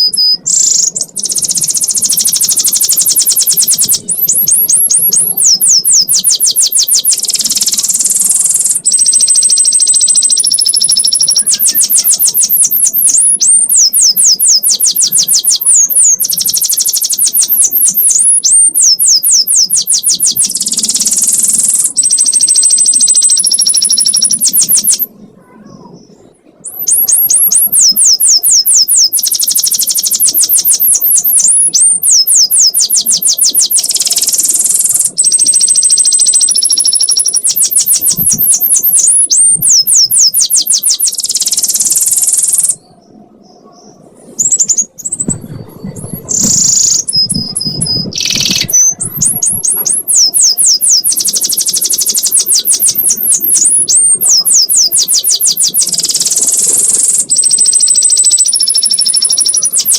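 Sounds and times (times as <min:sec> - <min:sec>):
canary trilling song: 0:00.0 - 0:59.9
whistled bird notes: 0:00.0 - 0:59.9.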